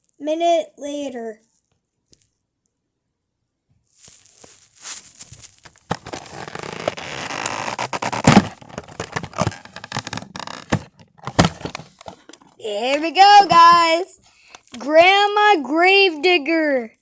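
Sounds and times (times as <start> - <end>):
packaging crackling and tearing: 4.0 - 14.8.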